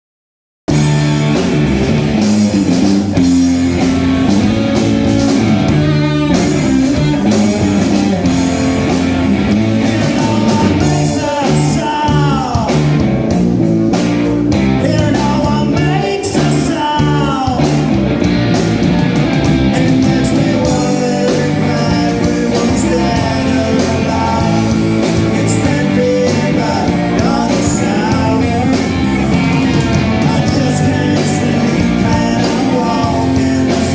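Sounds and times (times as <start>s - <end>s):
bass guitar: 0.7s - 33.9s
drum kit: 0.7s - 33.9s
electric guitar: 0.7s - 33.9s
person singing: 5.8s - 13.1s, 14.7s - 18.0s, 19.4s - 33.9s.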